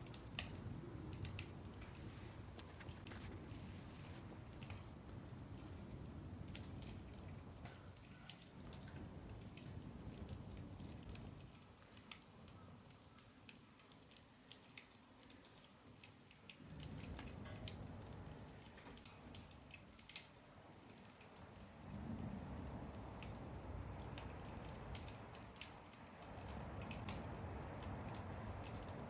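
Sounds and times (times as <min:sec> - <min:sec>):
low fire rumble: 0:00.0 - 0:29.0
wood fire crackling: 0:00.0 - 0:29.0.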